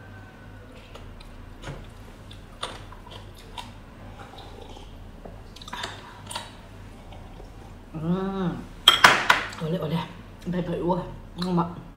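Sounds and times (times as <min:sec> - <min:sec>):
person chewing food: 0:00.5 - 0:08.9.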